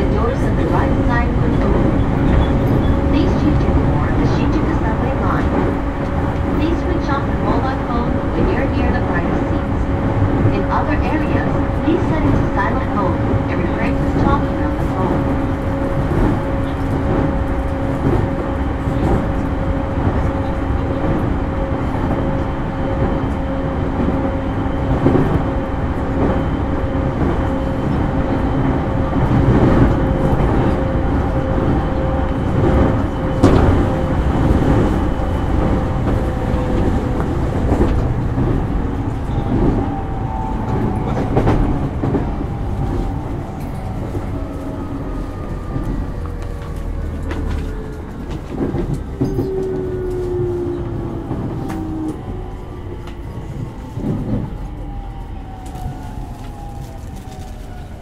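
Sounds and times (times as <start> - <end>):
train motor hum: 0.0 - 56.8.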